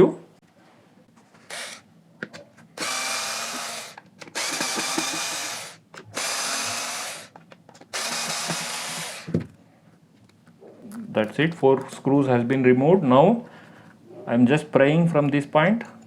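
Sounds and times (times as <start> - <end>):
power screwdriver running: 1.5 - 1.8, 2.8 - 9.4.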